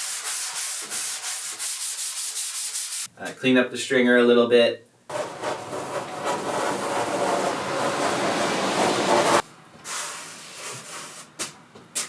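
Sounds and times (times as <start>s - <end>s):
sanding wood: 0.0s - 3.1s, 5.1s - 9.4s.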